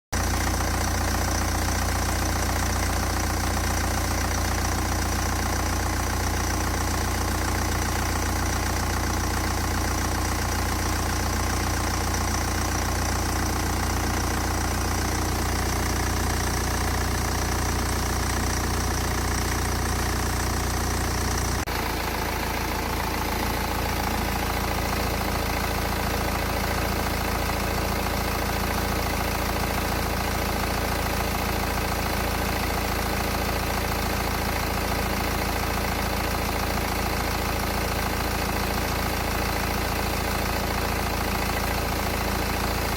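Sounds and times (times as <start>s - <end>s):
diesel engine idling: 0.2s - 42.9s.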